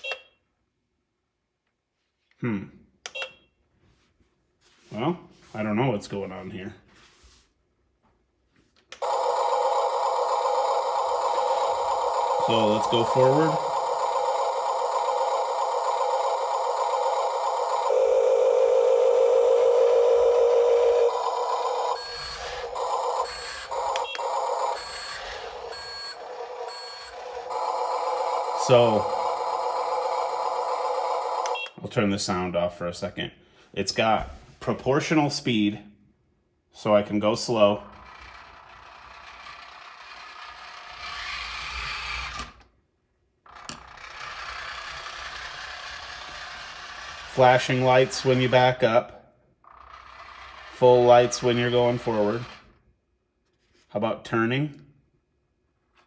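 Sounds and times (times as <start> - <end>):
electric motor and gearbox whirring: 9.0 - 31.7, 37.9 - 42.7, 43.5 - 48.9, 49.6 - 52.8
simulated truck engine from speaker: 10.3 - 29.8, 44.9 - 49.0, 50.2 - 52.6.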